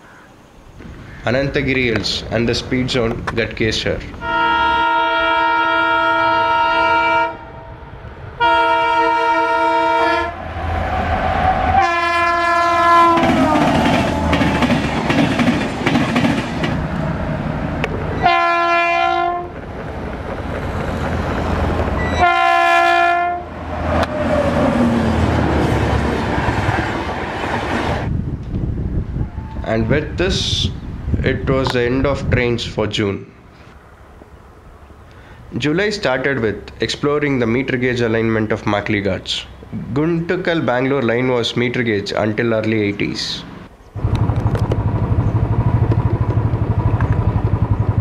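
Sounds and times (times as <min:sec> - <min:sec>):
train horn blasts: 0:04.2 - 0:07.8, 0:08.4 - 0:14.6, 0:18.2 - 0:19.6, 0:22.0 - 0:24.5
train wheels clattering over rails: 0:13.1 - 0:17.0, 0:19.5 - 0:22.0.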